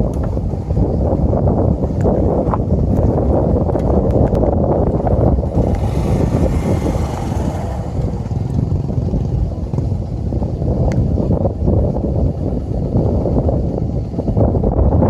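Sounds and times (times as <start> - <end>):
wind buffeting microphone: 0.0 - 15.0
small motorcycle engine: 4.3 - 14.7.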